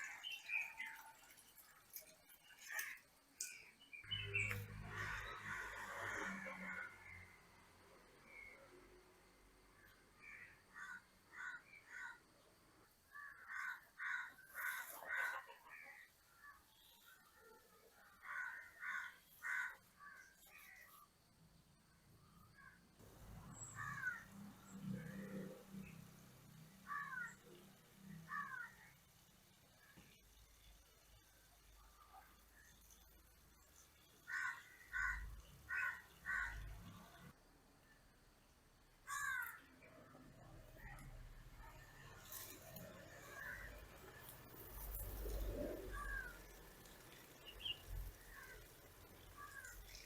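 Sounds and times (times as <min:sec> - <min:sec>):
crows cawing: 0:10.2 - 0:12.2, 0:13.1 - 0:16.0, 0:18.2 - 0:20.8, 0:23.8 - 0:24.3, 0:26.8 - 0:27.4, 0:28.3 - 0:28.8, 0:34.3 - 0:36.7, 0:39.1 - 0:39.7.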